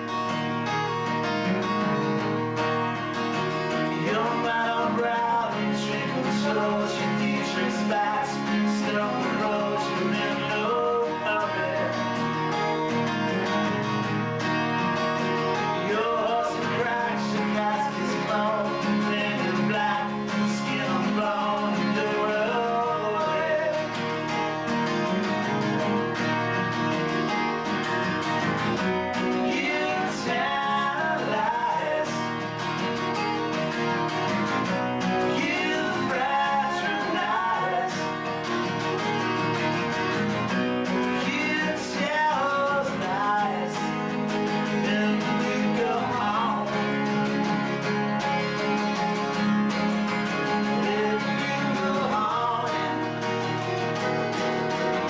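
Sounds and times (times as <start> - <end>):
strummed acoustic guitar: 0.0 - 55.0
person singing: 3.9 - 12.4, 15.4 - 24.6, 29.1 - 32.8, 35.0 - 38.8, 40.8 - 47.7, 50.2 - 53.6.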